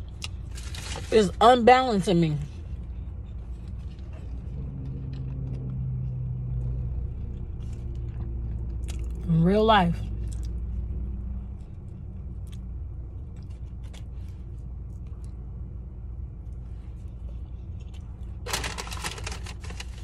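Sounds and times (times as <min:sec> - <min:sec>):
car engine hum: 0:00.0 - 0:20.0
person chewing food: 0:02.8 - 0:09.2, 0:10.2 - 0:15.7.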